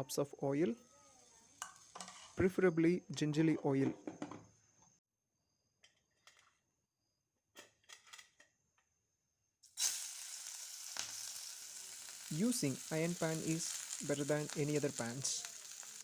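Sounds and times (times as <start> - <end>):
oil sizzling in a frying pan: 1.0 - 2.4, 9.6 - 16.0.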